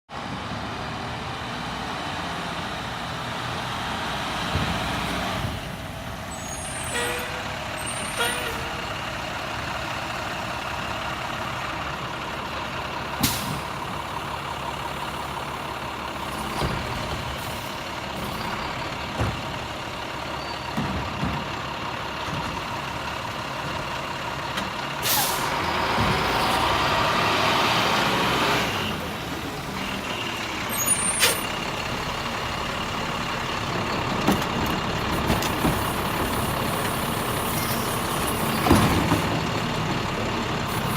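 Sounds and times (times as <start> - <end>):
garbage truck running: 0.2 - 40.9.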